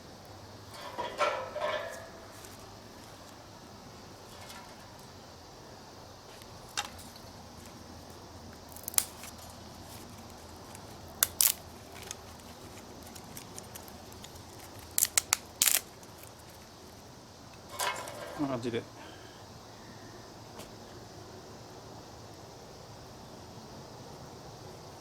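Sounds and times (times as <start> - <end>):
burning wood popping: 0.0 - 19.2
fire hissing: 0.0 - 25.0.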